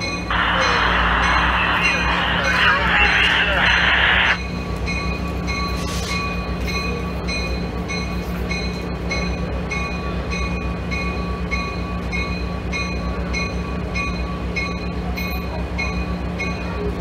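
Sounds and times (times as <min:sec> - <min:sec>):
diesel locomotive engine hum: 0:00.0 - 0:17.0
train bell ringing: 0:00.0 - 0:17.0.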